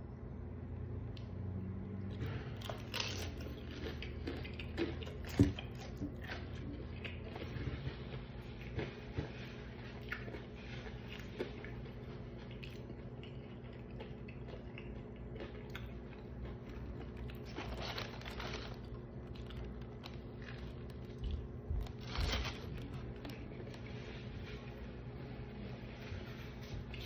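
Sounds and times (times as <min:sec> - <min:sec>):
steady low hum: 0:00.0 - 0:27.0
chewing crispy fried chicken: 0:01.9 - 0:27.0.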